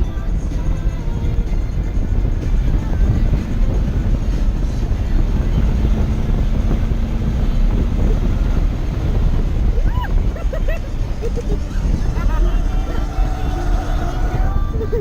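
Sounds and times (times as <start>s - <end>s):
race car engine and road noise: 0.0s - 15.0s.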